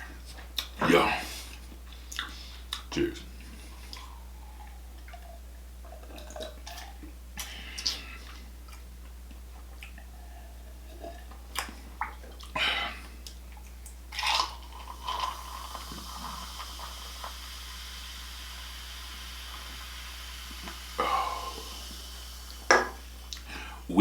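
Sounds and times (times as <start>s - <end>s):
low steady hum: 0.0s - 24.0s
wet slurping and chewing: 3.7s - 7.2s.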